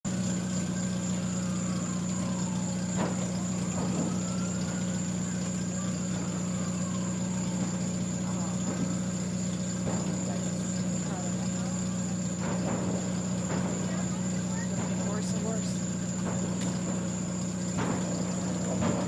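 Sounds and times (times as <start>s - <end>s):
engine idling hum: 0.0s - 19.0s
distant siren wailing: 0.1s - 19.0s.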